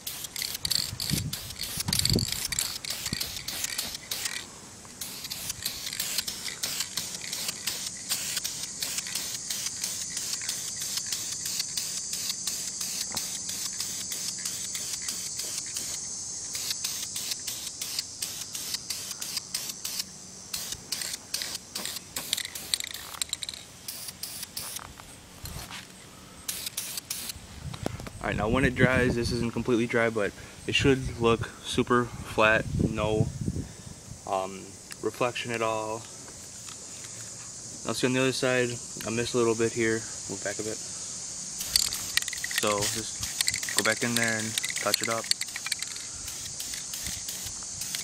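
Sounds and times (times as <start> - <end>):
aerosol spray can hissing: 0.0 - 25.8, 26.5 - 27.4, 40.4 - 48.0.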